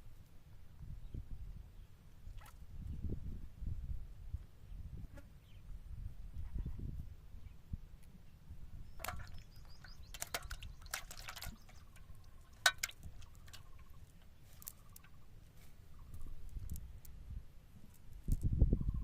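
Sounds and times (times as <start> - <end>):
water splashing and dripping: 9.0 - 15.2.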